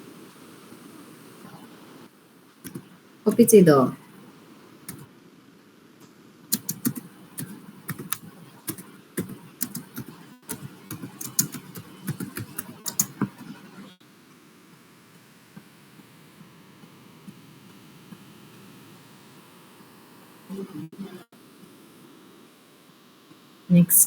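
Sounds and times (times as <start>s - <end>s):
computer keyboard typing: 6.5s - 13.4s.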